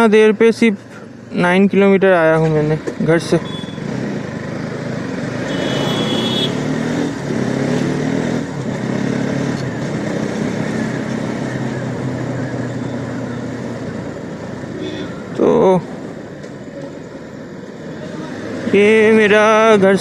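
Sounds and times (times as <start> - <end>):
road and wind noise: 0.0 - 20.0
motorcycle engine revving: 2.7 - 15.4.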